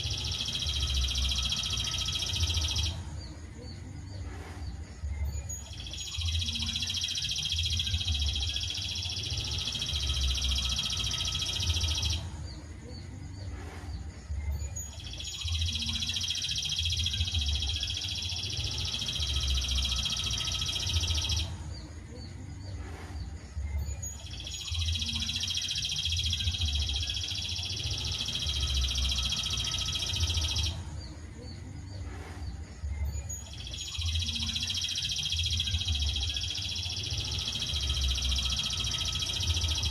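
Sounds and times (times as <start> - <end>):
songbird trilling: 0.0 - 3.0, 5.4 - 12.2, 14.6 - 21.5, 24.0 - 30.8, 33.3 - 39.9.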